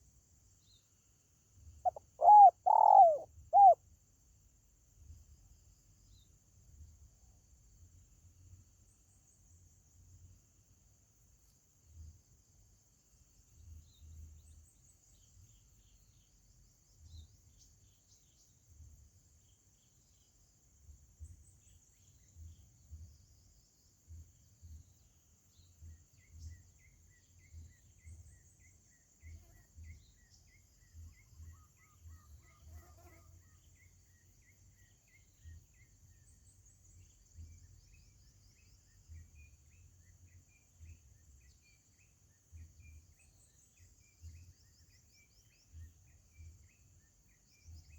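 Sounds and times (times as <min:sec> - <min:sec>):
bird chirps: 0:01.8 - 0:03.8.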